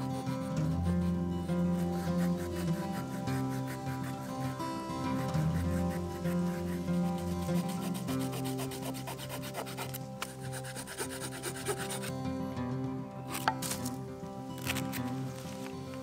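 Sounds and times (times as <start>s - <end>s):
saw rasping through branch: 0.0s - 12.1s
background music: 0.0s - 16.0s.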